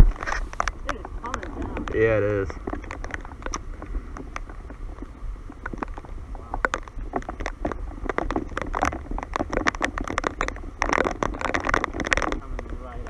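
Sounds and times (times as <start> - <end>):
raindrops tapping on camera: 0.0 - 13.0
wind rumble on microphone: 0.0 - 13.0.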